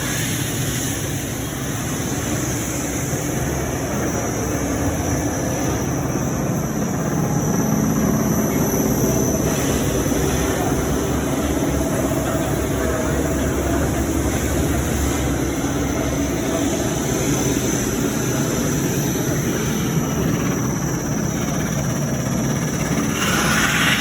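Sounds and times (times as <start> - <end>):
sanding machine whirring: 22.9 - 24.0.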